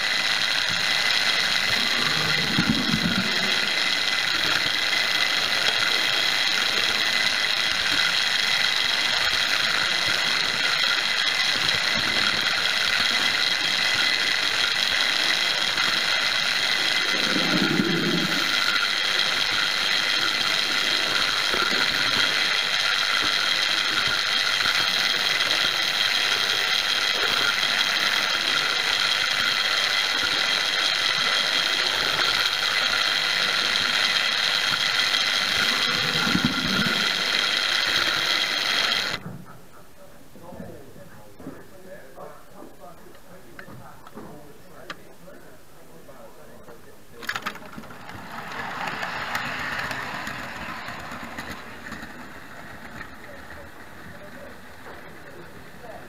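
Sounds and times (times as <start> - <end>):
model train motor whining: 0.0 - 39.3, 43.2 - 56.0.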